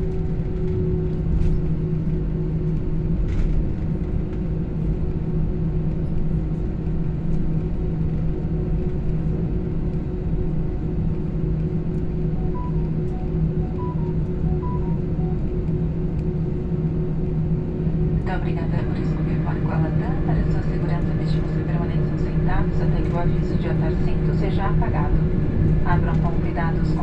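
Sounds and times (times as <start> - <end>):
jet engine drone in cabin: 0.0 - 27.0
short high tones: 12.4 - 15.5.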